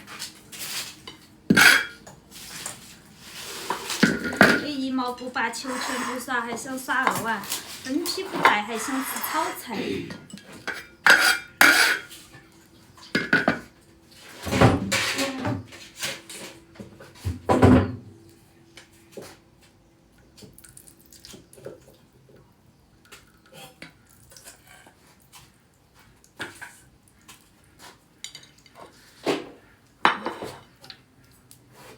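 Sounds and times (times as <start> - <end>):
utensils clattering against pots: 0.0 - 18.1, 28.2 - 29.4, 30.0 - 31.0.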